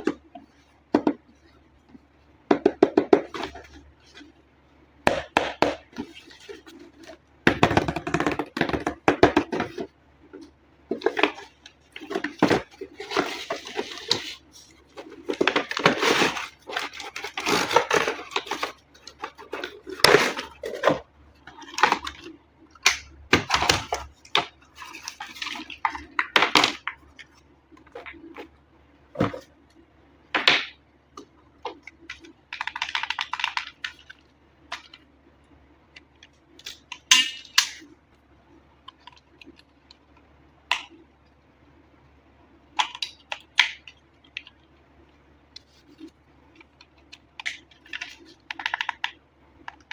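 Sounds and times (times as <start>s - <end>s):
packaging rustling: 10.9s - 21.0s
plastic parts clicking: 31.2s - 35.0s, 45.6s - 49.9s.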